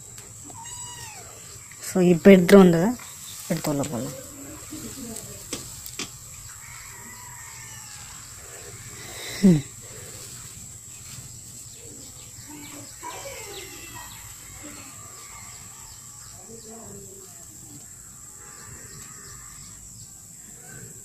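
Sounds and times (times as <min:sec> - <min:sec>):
faint birds chirping: 0:00.0 - 0:21.0.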